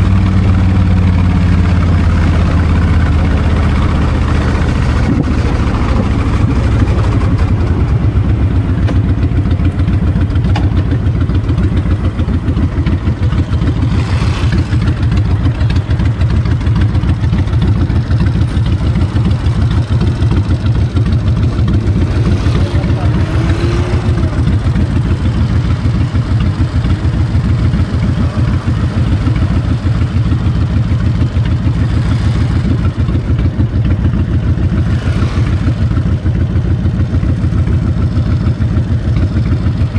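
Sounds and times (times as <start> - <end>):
motorcycle engine running: 0.0 - 39.9
wind noise on microphone: 4.9 - 6.1.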